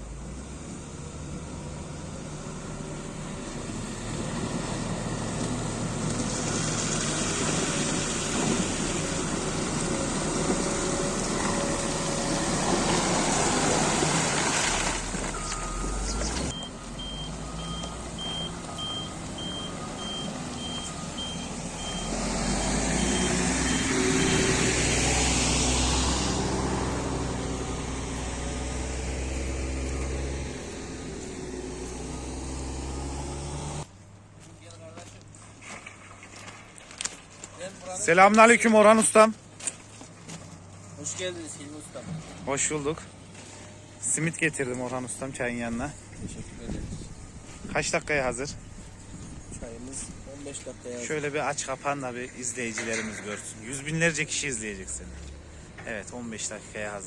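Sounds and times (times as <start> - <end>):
diesel engine running: 0.0 - 33.9
reversing alarm beeping: 15.3 - 24.6.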